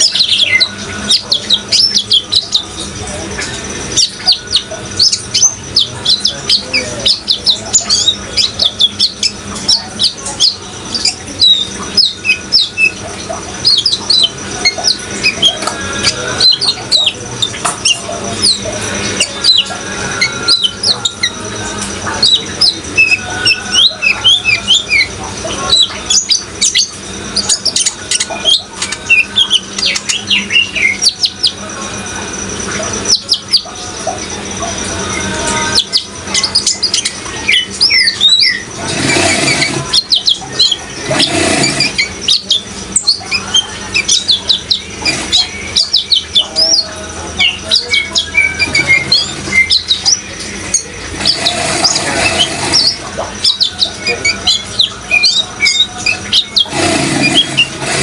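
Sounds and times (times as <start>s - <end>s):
birds chirping and twittering: 0.0s - 58.0s
running water hissing: 31.0s - 58.0s.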